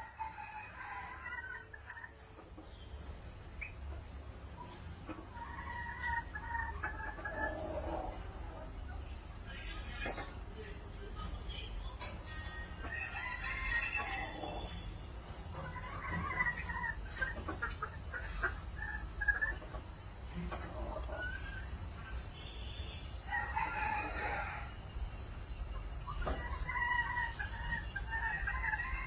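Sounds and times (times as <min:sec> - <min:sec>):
chickens calling: 0:00.0 - 0:29.0
rooster crowing: 0:12.4 - 0:14.9, 0:23.2 - 0:25.0, 0:26.3 - 0:29.0.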